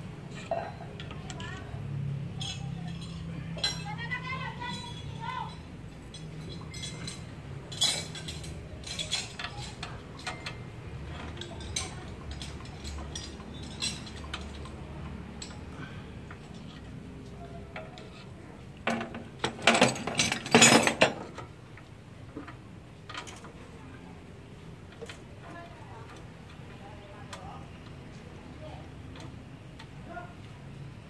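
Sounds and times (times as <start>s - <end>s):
metal clinks and rattles: 0.1s - 21.5s
wrench clinking on bolts: 2.3s - 17.0s, 17.7s - 21.4s.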